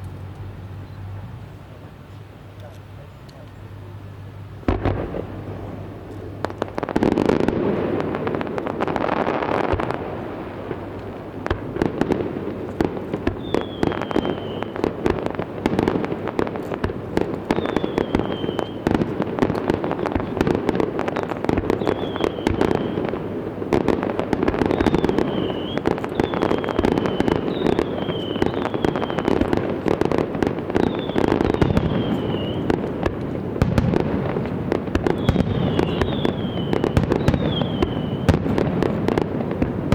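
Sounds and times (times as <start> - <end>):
fireworks bangs and pops: 4.6 - 39.9
falling firework whistles: 12.7 - 16.0, 16.8 - 23.2, 23.8 - 39.8.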